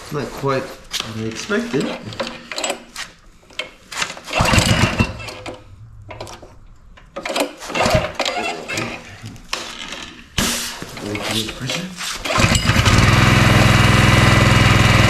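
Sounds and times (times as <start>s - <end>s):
engine start-up noise: 4.2s - 9.1s, 12.2s - 15.0s
small engine idling roughly: 12.3s - 15.0s.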